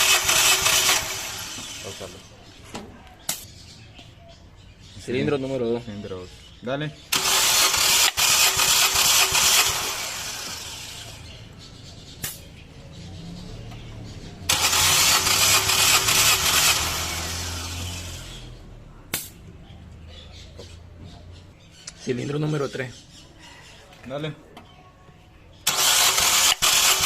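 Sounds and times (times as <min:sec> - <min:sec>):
engine cranking on starter: 0:00.0 - 0:02.3, 0:07.1 - 0:11.4, 0:14.3 - 0:18.6, 0:25.6 - 0:27.0
sharp click: 0:03.3 - 0:03.5, 0:12.2 - 0:12.5, 0:19.1 - 0:19.4.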